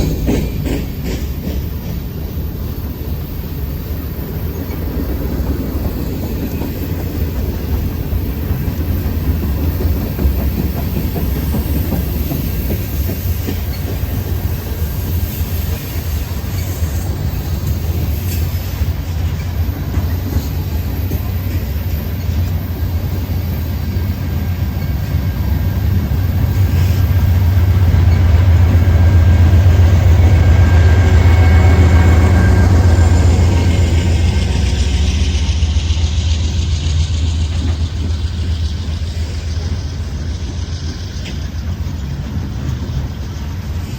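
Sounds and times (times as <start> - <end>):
train rumbling on rails: 0.0 - 43.9.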